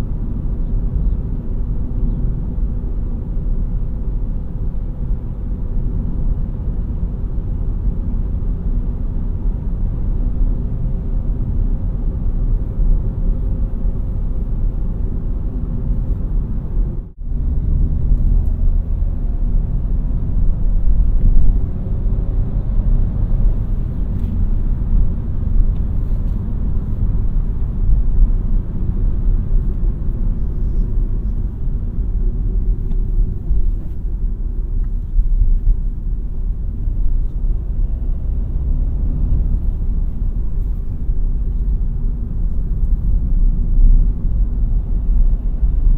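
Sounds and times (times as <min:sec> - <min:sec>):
car engine drone: 0:00.0 - 0:45.9
road rumble: 0:00.0 - 0:45.9.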